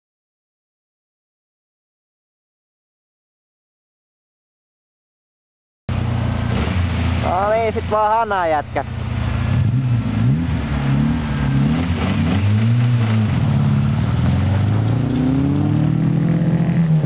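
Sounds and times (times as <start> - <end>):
rally car engines revving: 5.9 - 17.0.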